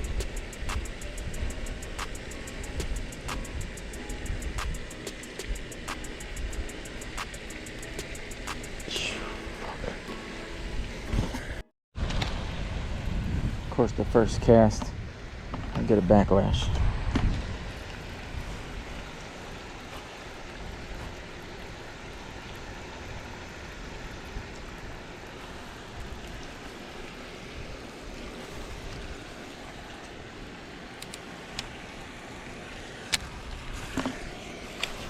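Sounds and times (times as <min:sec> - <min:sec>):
small sharp clicks: 0:00.2 - 0:01.1, 0:02.0 - 0:03.7, 0:07.1 - 0:08.9, 0:31.0 - 0:31.7
wind noise over microphone: 0:10.8 - 0:15.8, 0:16.6 - 0:19.2.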